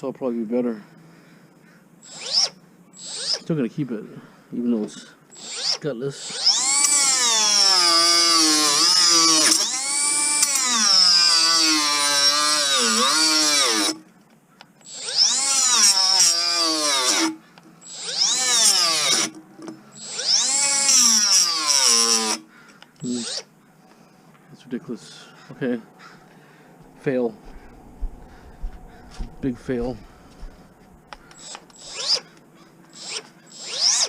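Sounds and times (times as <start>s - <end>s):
cut-off tool motor whine: 2.0s - 3.5s, 5.3s - 14.0s, 14.8s - 19.3s, 19.9s - 22.4s, 23.0s - 23.5s, 31.3s - 32.3s, 32.9s - 34.0s
abrasive wheel cutting rubber: 5.3s - 14.0s, 32.9s - 34.0s.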